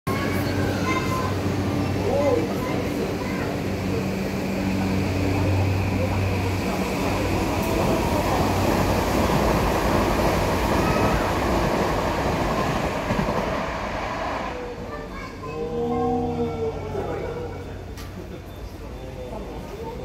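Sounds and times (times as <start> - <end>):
electric train humming: 0.1 - 18.1
wheels rumbling on rail: 0.1 - 20.0.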